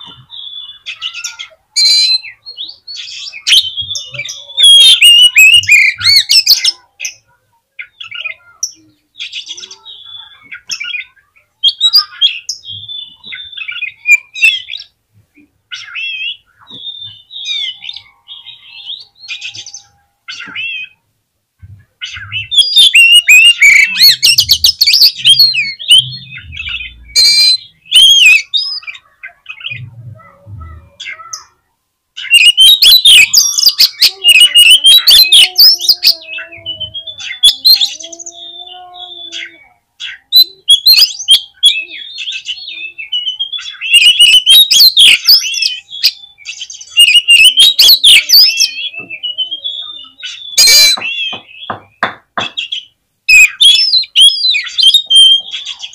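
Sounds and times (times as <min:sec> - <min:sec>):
bird singing chattering and whistling: 0:00.0 - 0:07.2, 0:15.7 - 0:21.0, 0:22.0 - 0:29.9, 0:32.2 - 0:55.9.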